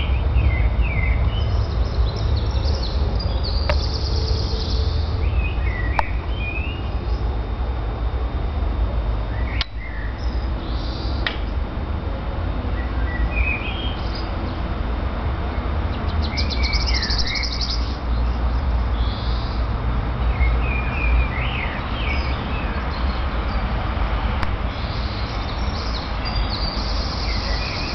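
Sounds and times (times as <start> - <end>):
small birds chirping: 0.0 - 7.6, 9.2 - 11.6, 12.7 - 14.7, 15.8 - 23.8, 24.6 - 27.9
steady low rumble: 0.0 - 16.4
sharp click: 9.6 - 9.8, 11.2 - 11.5.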